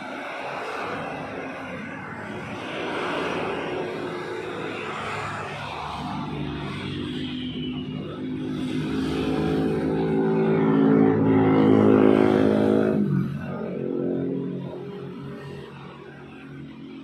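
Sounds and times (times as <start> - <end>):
vehicle engine passing by: 5.9 - 14.4.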